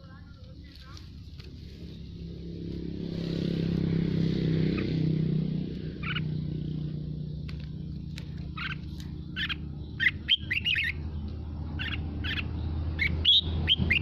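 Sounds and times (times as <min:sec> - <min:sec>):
low mechanical hum: 0:00.0 - 0:14.0
bird chirps: 0:04.6 - 0:14.0.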